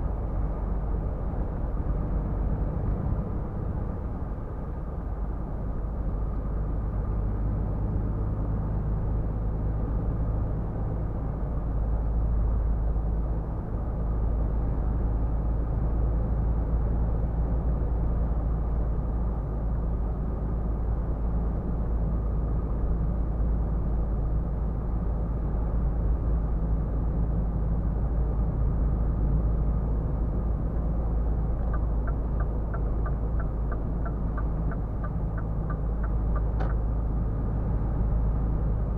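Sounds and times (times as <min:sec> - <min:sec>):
road and tyre noise: 0:00.0 - 0:38.9
truck diesel engine drone: 0:19.8 - 0:38.9.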